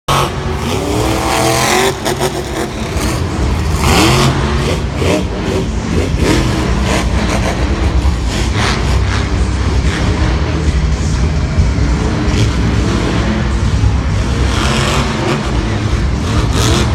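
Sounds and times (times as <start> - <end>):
truck engine revving: 0.0 - 16.9.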